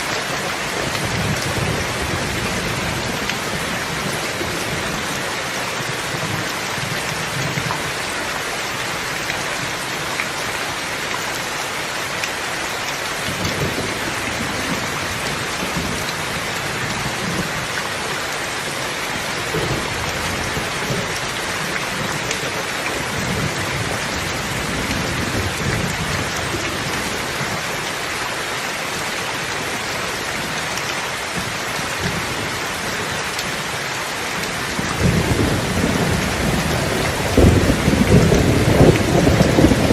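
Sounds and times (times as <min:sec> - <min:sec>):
rain pattering: 0:00.0 - 0:39.9
thunder rumbling: 0:34.6 - 0:39.9.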